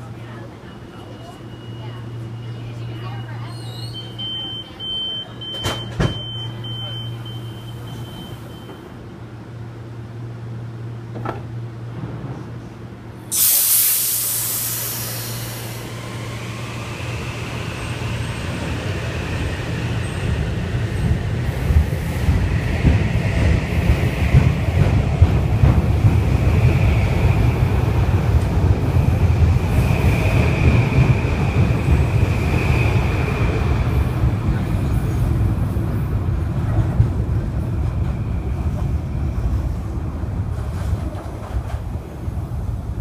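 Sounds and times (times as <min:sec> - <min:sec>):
train wheels rumbling on rails: 0:10.8 - 0:43.0
loud air hiss: 0:13.3 - 0:17.7.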